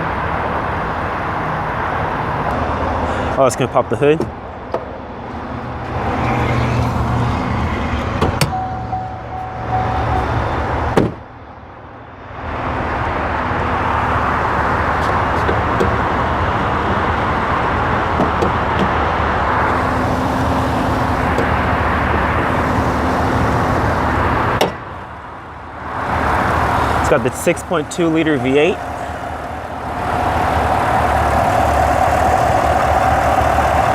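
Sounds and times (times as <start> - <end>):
car engine idling: 13.6 - 33.9.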